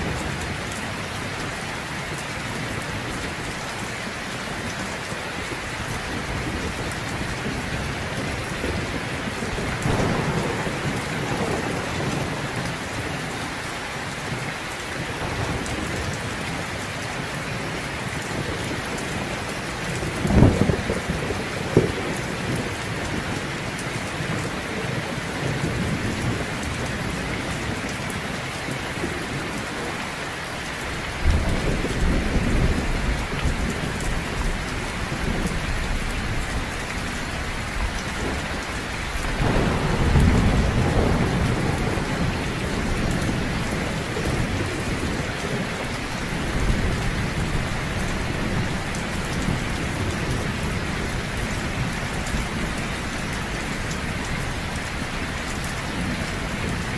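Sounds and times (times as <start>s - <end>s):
heavy rain falling: 0.0s - 56.9s
rolling thunder: 5.8s - 13.6s, 17.4s - 30.0s, 31.0s - 54.1s.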